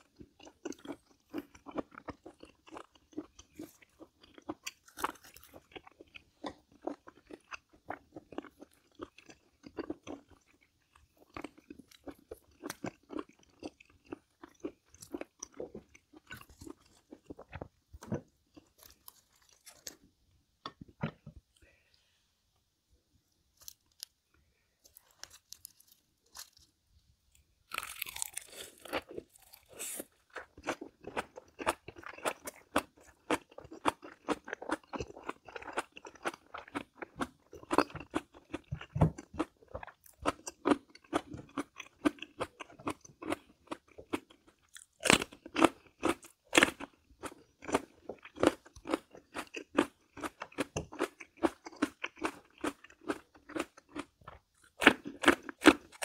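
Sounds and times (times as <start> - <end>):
crunchy food chewing: 0.0 - 21.8, 23.6 - 56.0.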